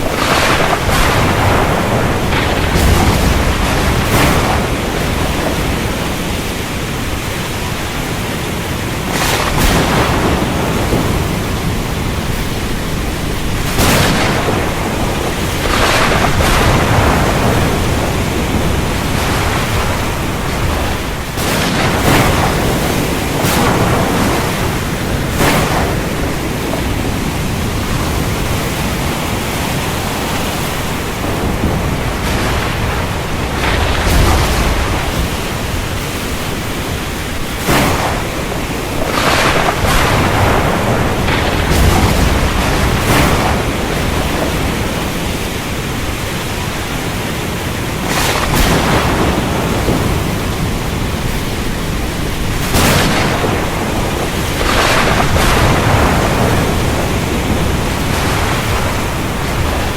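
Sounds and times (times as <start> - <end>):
heavy rain: 0.0 - 59.9
thunder cracks: 0.0 - 59.9.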